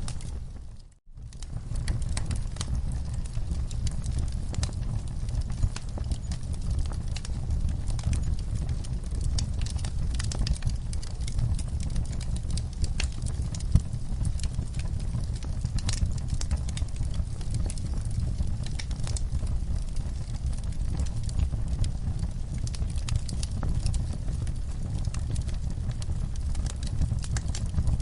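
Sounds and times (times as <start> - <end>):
campfire crackling: 0.0 - 28.0.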